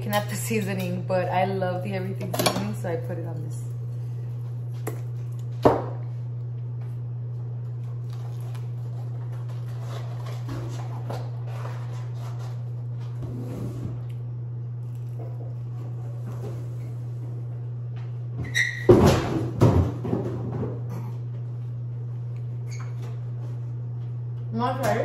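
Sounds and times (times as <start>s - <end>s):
low hum: 0.0s - 18.4s.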